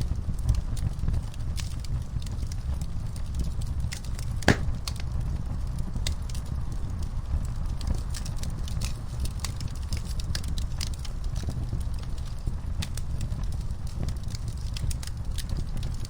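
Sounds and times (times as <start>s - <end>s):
wood fire crackling: 4.5s - 4.9s.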